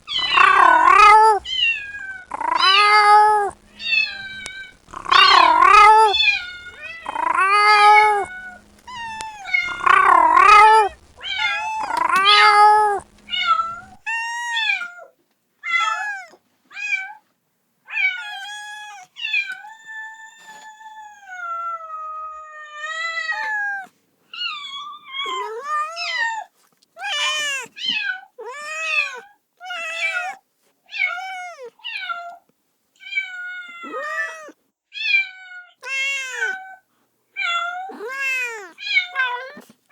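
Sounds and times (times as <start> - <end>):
faint hum: 0.0 - 14.5
kitten meowing: 0.1 - 15.0, 15.7 - 17.1, 18.0 - 22.4, 23.1 - 30.4, 31.0 - 32.3, 33.0 - 35.2, 35.8 - 36.8, 37.4 - 39.7.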